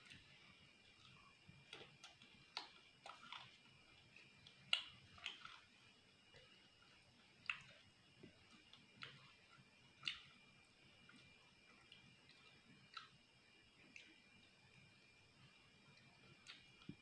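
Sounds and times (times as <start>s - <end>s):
chewing crispy fried food: 0.0s - 17.0s.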